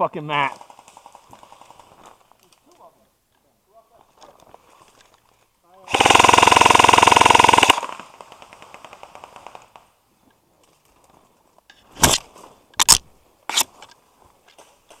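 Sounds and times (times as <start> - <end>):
airsoft guns firing full auto: 5.9 - 9.9.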